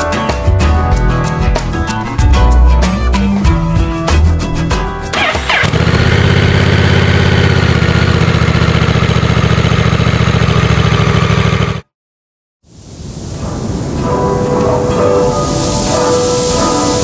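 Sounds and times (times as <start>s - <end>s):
music: 0.0s - 5.7s, 13.4s - 17.0s
motorcycle engine starting and idling: 5.1s - 11.9s.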